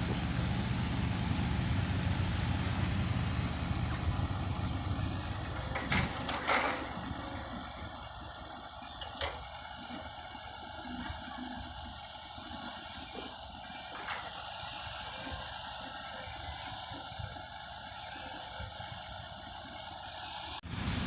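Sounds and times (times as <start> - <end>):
truck engine rumbling: 0.0 - 21.0.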